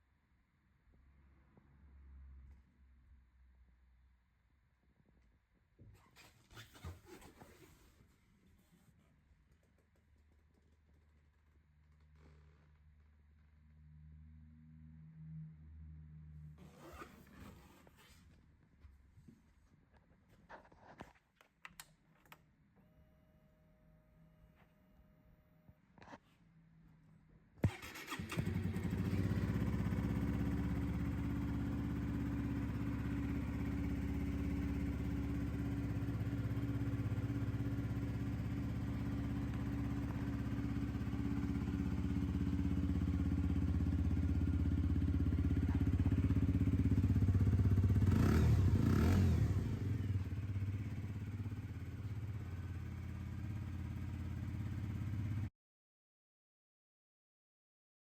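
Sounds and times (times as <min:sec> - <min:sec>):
motorcycle engine starting and idling: 0:27.6 - 0:55.5.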